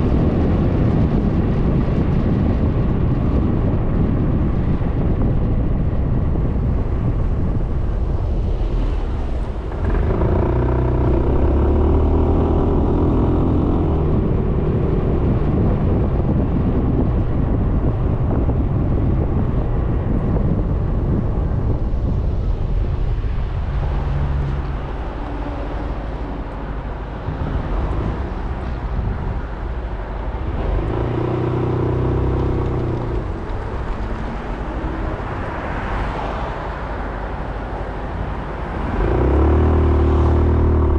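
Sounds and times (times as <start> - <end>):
road noise: 0.0 - 40.9
wind rush: 0.0 - 40.9
scooter engine running: 9.4 - 15.5.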